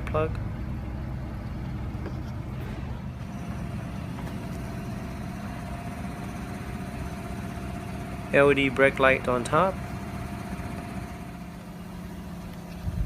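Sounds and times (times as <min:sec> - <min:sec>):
faint steady whine: 0:00.0 - 0:13.0
vehicle rumble: 0:00.0 - 0:13.0.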